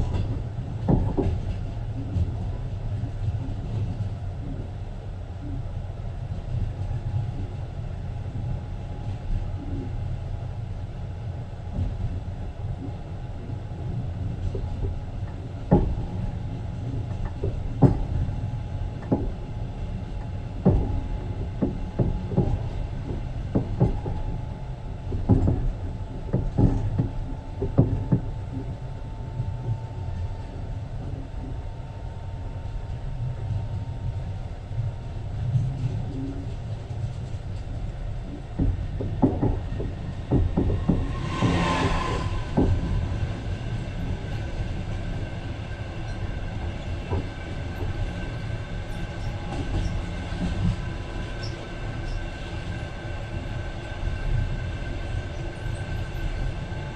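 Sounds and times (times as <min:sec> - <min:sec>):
train wheels knocking on track: 0:00.0 - 0:01.6, 0:14.5 - 0:19.6, 0:20.2 - 0:28.8, 0:38.3 - 0:54.6
train rumble inside carriage: 0:00.0 - 0:56.9.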